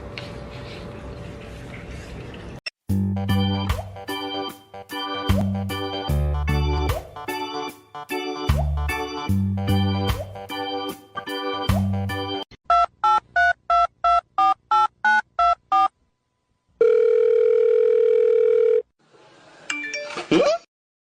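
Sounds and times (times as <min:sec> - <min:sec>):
telephone ringback tone: 0:16.8 - 0:18.9.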